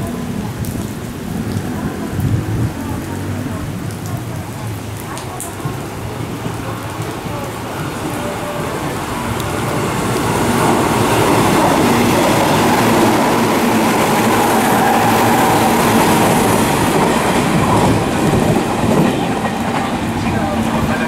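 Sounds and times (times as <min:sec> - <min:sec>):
heavy rain: 0:00.0 - 0:21.0
electric train passing at speed: 0:05.6 - 0:21.0.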